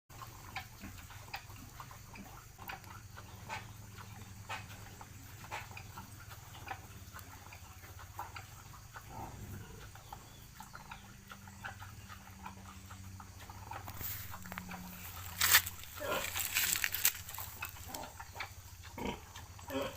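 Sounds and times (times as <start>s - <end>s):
steady low hum: 1.1s - 19.9s
pig clicks and knocks: 10.6s - 19.8s.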